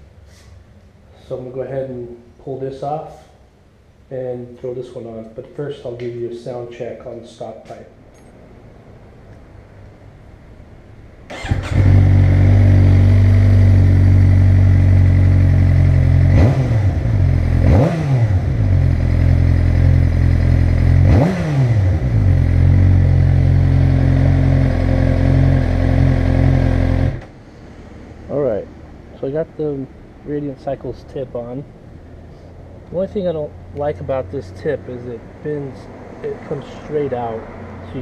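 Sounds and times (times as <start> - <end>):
motorcycle engine idling and revving: 11.3 - 29.0.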